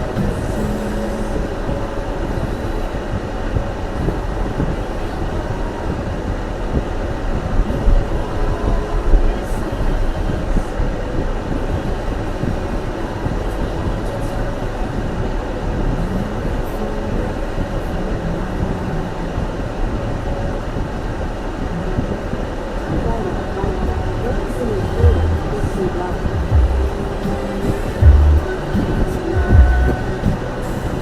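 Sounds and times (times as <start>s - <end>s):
car interior road rumble: 0.0s - 31.0s.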